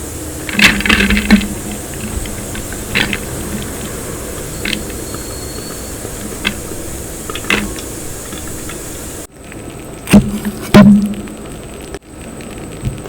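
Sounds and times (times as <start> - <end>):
steady hiss: 0.0 - 13.0
mouth clicks: 0.2 - 9.3.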